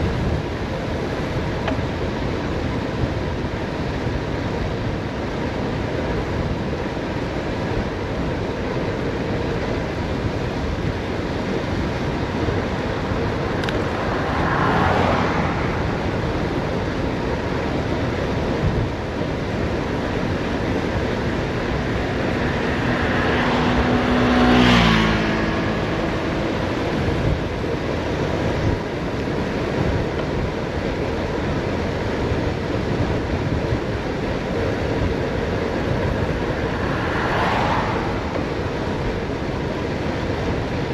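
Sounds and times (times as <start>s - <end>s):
wind rushing on microphone: 0.0s - 40.9s
vehicle passing by: 10.3s - 18.8s, 19.4s - 30.0s, 34.2s - 40.9s.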